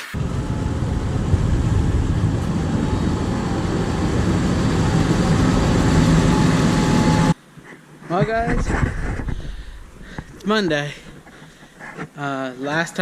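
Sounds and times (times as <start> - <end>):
vehicle engine heavy rumble: 0.2 - 7.4.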